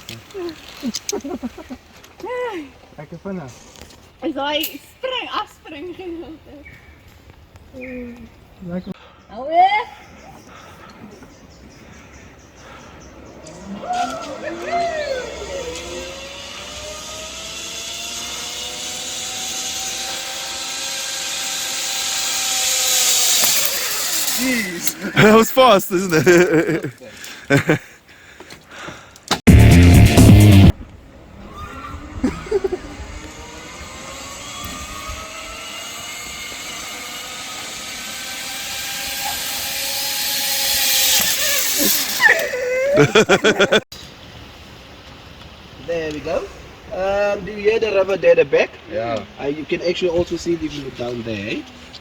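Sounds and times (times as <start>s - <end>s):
zipline pulleys whining on cable: 13.3s - 26.7s, 31.3s - 43.8s.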